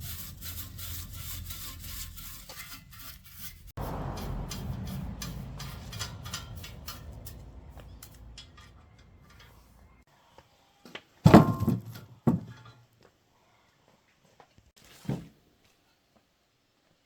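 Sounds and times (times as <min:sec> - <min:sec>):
machine rumbling with rattling: 0:00.0 - 0:10.0.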